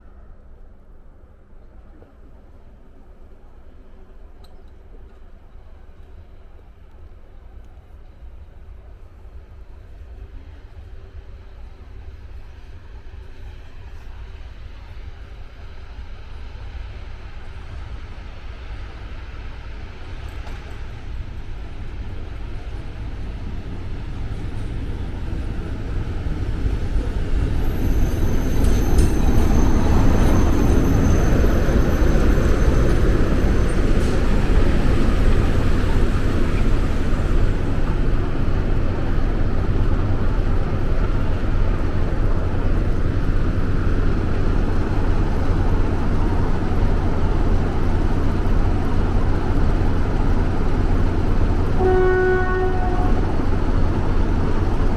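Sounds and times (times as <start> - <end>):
train rumbling: 0.0 - 54.9
thin high whine: 25.7 - 38.4.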